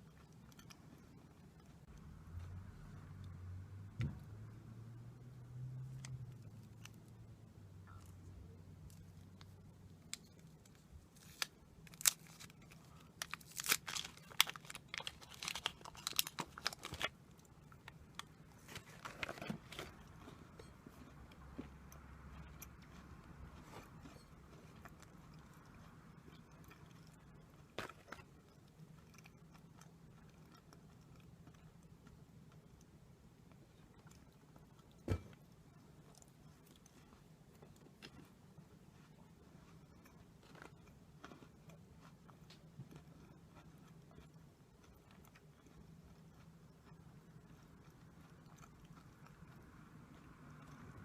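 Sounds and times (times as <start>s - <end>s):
low steady hum: 0.0s - 51.0s
person chewing: 7.8s - 32.9s, 33.5s - 51.0s
crunching food: 7.9s - 21.6s.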